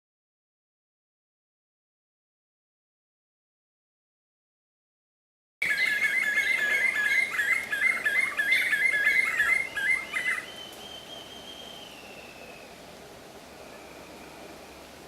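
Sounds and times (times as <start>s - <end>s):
bird calling rapid repeated notes: 5.6s - 11.7s
faint falling whistle-like tone: 10.4s - 12.8s, 13.6s - 14.8s.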